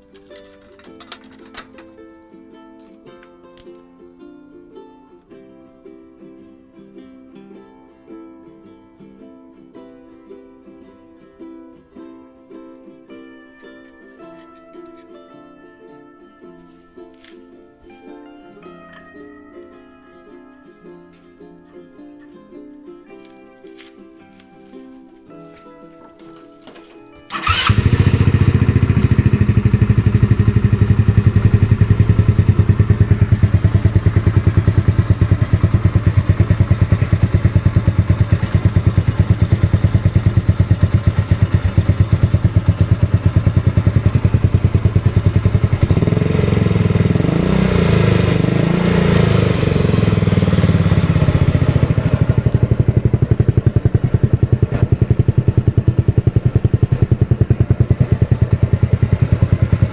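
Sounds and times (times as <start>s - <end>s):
scooter engine revving: 27.3s - 59.9s
scooter engine starting and idling: 27.3s - 59.9s.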